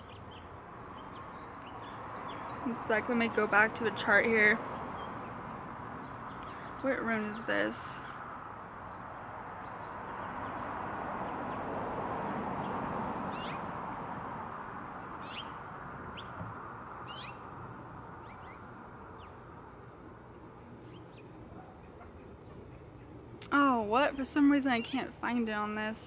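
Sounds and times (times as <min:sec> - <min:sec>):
soft rushing background noise: 0:00.0 - 0:26.0
small bird chirping: 0:15.2 - 0:16.4, 0:17.0 - 0:17.4.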